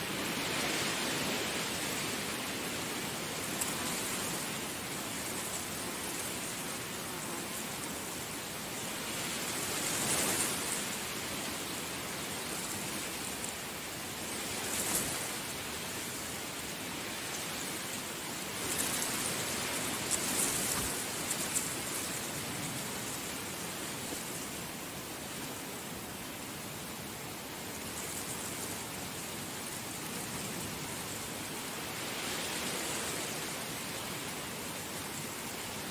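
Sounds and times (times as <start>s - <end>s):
heavy rain falling: 7.6s - 35.9s.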